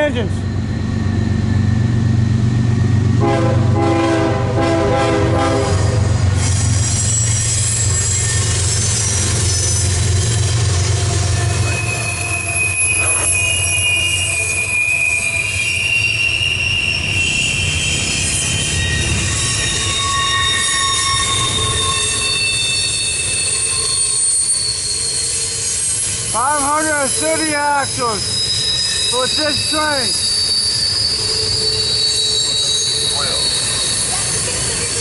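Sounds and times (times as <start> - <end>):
diesel locomotives rumbling: 0.0 - 35.0
train horn: 3.2 - 6.2
high wheel squeal: 5.8 - 35.0.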